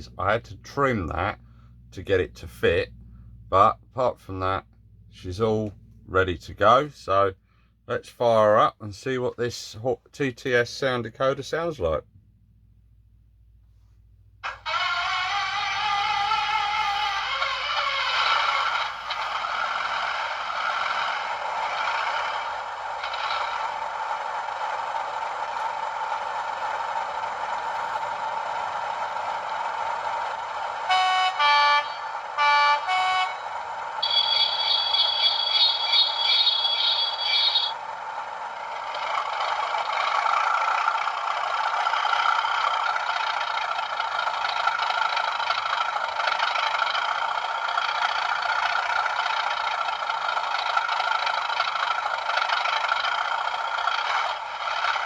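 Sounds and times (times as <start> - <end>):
diesel engine through phone speaker: 0.0 - 12.8, 13.8 - 55.0
two-tone train horn blasts: 30.9 - 37.7
rapid pulsing high tone: 34.0 - 37.8.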